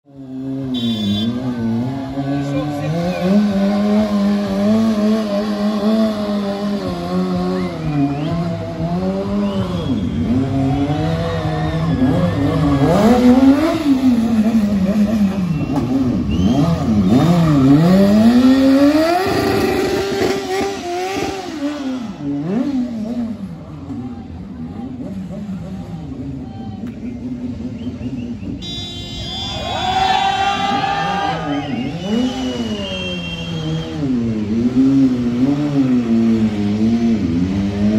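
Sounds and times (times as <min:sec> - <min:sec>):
motorcycle engine revving hard: 0:00.3 - 0:23.5, 0:30.3 - 0:37.9
tyre squeal: 0:27.8 - 0:34.2.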